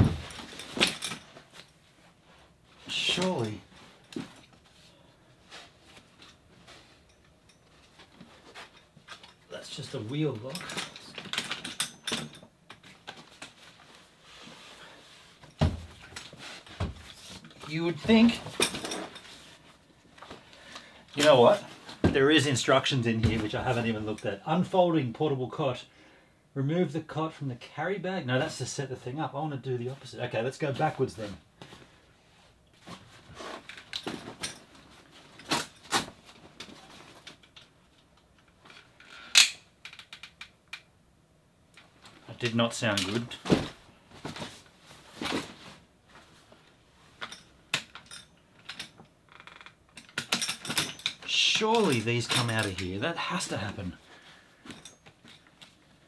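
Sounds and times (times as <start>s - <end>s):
heavy thumps: 0.0s - 0.6s, 15.6s - 16.1s
folding frame clicking and rattling: 0.0s - 1.4s, 47.2s - 53.0s.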